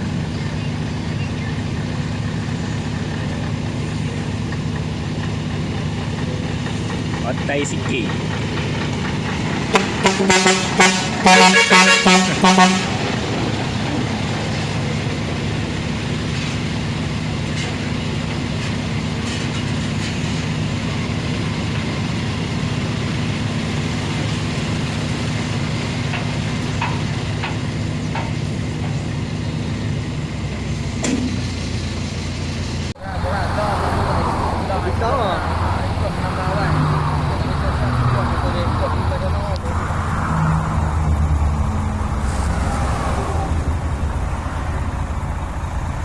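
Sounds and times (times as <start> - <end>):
truck engine running: 0.0 - 46.0
truck horn short toots: 9.7 - 13.2.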